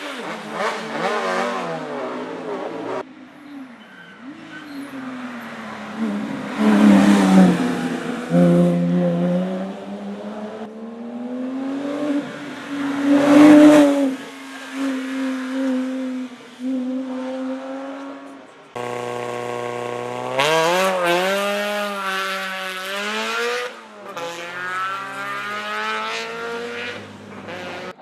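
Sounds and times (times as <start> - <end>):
race car engine accelerating: 5.5 - 14.7, 18.8 - 28.0.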